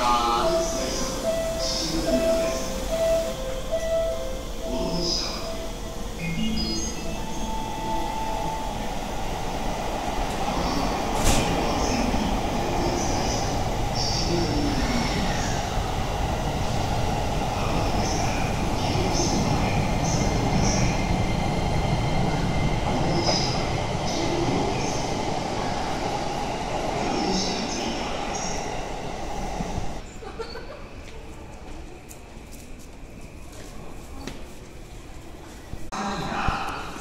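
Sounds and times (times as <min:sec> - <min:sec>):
train wheels rumbling: 0:00.0 - 0:30.0.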